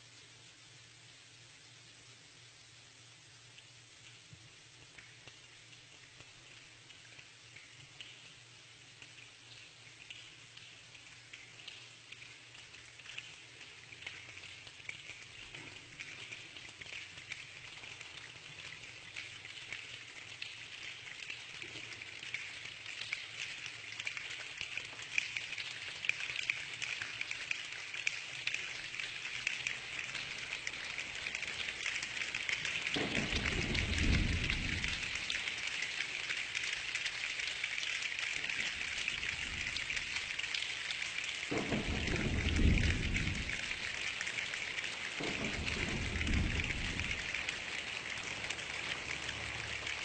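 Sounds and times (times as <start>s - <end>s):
steady rain hissing: 0.0s - 50.0s
low rumble of thunder: 33.0s - 35.3s, 38.7s - 40.2s, 41.5s - 44.0s, 45.2s - 47.5s.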